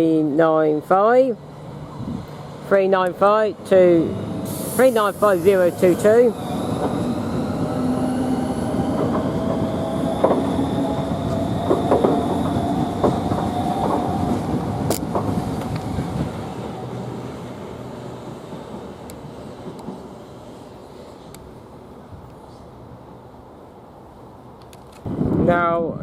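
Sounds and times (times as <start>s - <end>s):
electric train whine: 1.4s - 22.0s
wheels clicking over rail joints: 8.8s - 16.3s.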